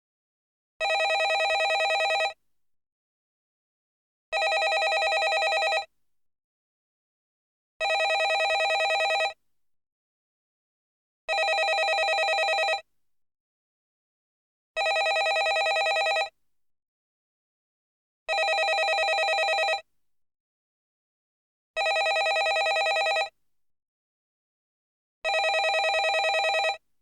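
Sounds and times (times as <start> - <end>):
telephone bell ringing: 0.8 - 2.4, 4.4 - 5.9, 7.8 - 9.4, 11.3 - 12.8, 14.8 - 16.3, 18.3 - 19.8, 21.8 - 23.3, 25.3 - 26.8.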